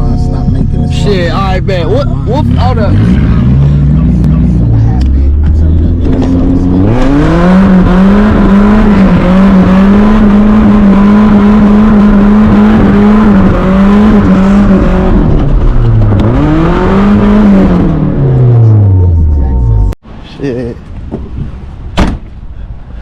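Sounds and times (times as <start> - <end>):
car engine revving hard: 1.0 - 19.3.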